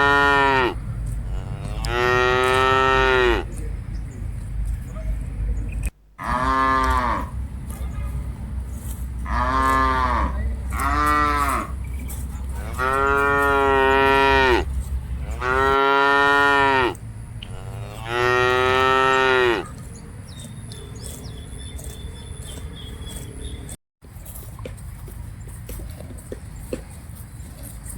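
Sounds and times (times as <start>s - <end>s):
cattle mooing: 0.0s - 3.5s, 6.2s - 7.4s, 9.2s - 11.8s, 12.5s - 19.8s.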